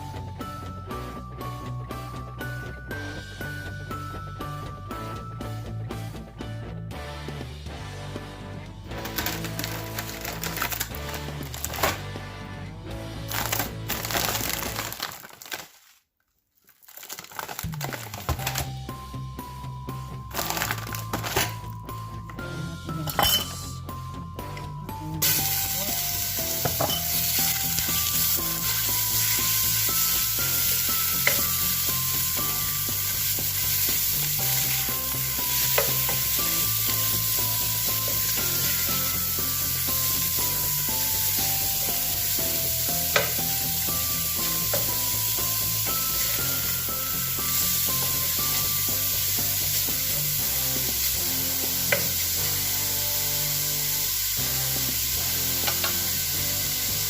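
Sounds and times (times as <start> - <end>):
food sizzling in a pan: 25.2 - 57.0.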